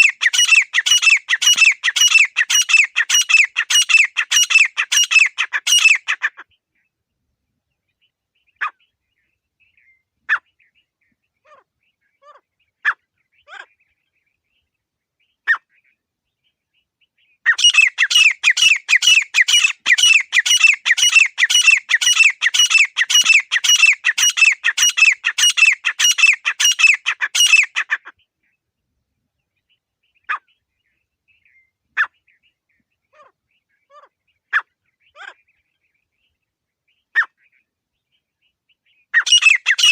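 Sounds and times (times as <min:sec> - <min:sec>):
francolin calling: 0:00.0 - 0:06.4, 0:17.5 - 0:28.0, 0:39.2 - 0:39.9.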